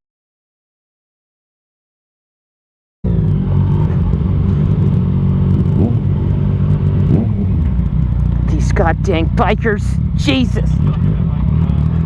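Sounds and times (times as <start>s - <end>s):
road noise: 3.0s - 12.0s
motorcycle engine running: 3.1s - 12.0s.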